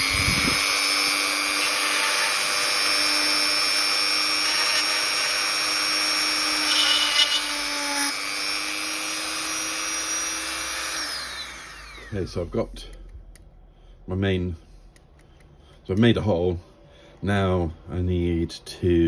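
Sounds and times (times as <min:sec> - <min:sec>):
drill bit rasping through plastic: 0:00.0 - 0:12.3
electric drill whining: 0:00.0 - 0:12.3.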